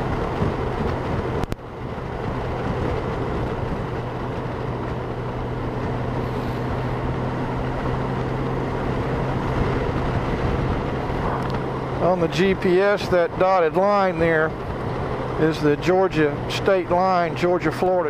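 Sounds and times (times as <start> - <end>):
motorcycle cruising: 0.0 - 18.0
wind rushing over microphone: 0.0 - 18.0.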